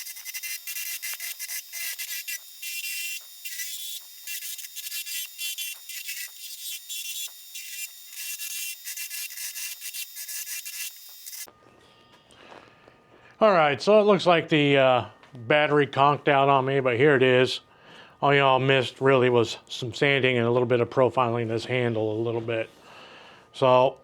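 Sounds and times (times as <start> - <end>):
tool scraping spinning wood: 0.0 - 11.5
faint lathe hum: 0.0 - 13.1.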